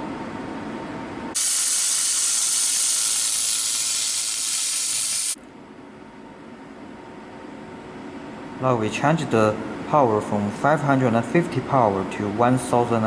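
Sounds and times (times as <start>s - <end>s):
laser welding gun hissing: 1.4s - 5.4s.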